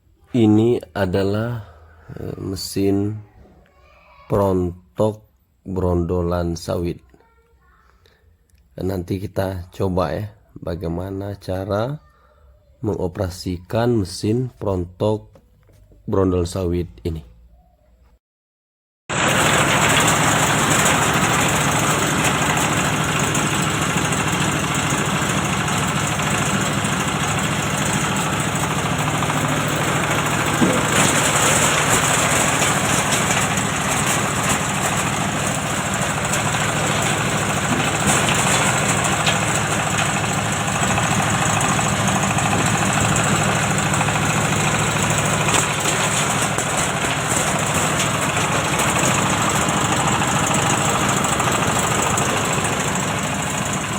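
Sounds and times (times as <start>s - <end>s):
thresher engine drone: 19.1s - 53.9s.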